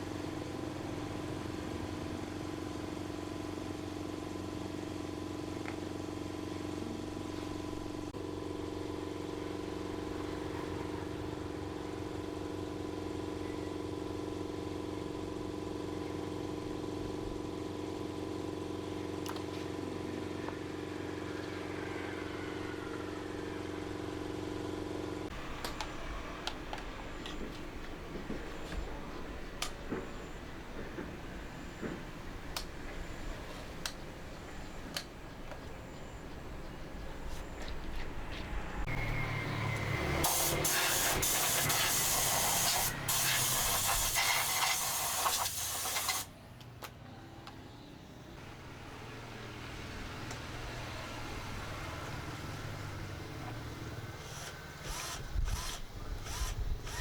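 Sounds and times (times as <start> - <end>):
electric fan motor humming: 0.0 - 46.7, 48.3 - 57.0.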